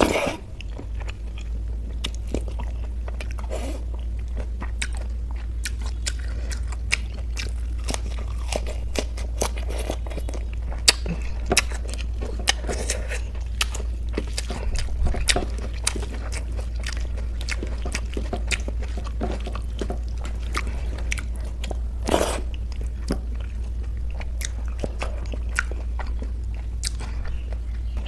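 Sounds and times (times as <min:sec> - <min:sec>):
lettuce crunching: 0:00.0 - 0:28.0
steady low hum: 0:00.0 - 0:28.0.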